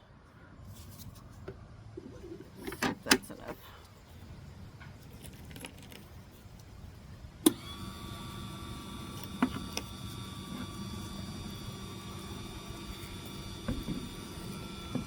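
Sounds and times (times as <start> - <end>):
electric motor whining: 7.4 - 15.0.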